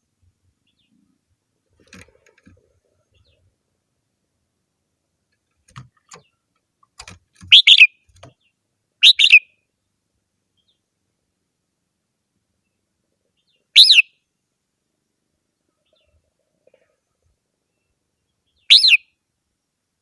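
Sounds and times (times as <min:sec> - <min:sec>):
bird singing: 0:07.5 - 0:09.6, 0:12.6 - 0:14.2, 0:17.6 - 0:19.2.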